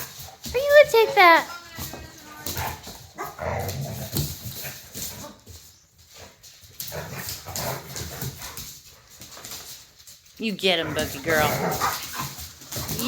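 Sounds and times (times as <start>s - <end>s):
dog barking and grumbling: 10.7s - 12.3s.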